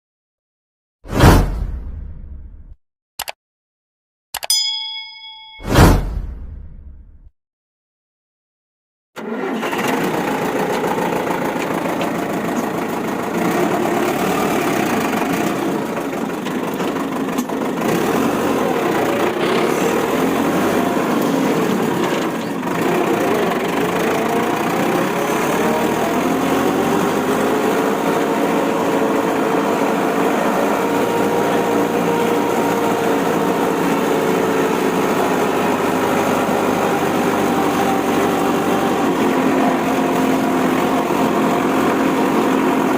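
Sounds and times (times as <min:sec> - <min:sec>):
vehicle engine running: 0:09.9 - 0:22.0.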